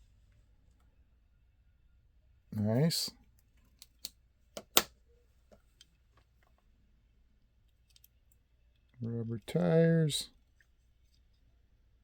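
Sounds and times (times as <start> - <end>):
clicks and taps of handling: 3.5 - 4.9.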